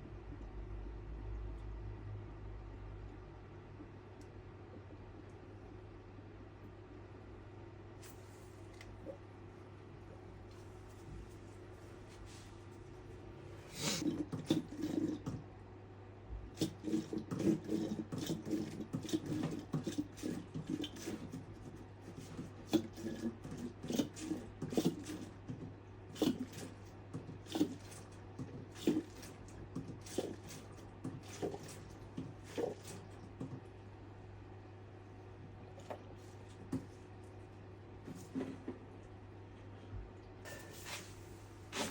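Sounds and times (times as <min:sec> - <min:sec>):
liquid glugging into radiator: 0:13.8 - 0:15.5, 0:16.5 - 0:33.8.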